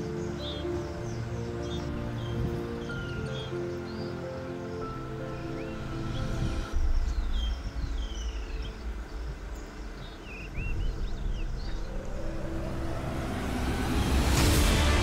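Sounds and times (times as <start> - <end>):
rushing noise: 5.2 - 15.0.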